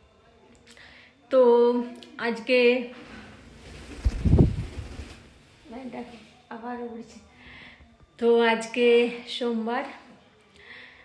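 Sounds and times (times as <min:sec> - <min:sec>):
parrot wings flapping: 0:03.0 - 0:06.2.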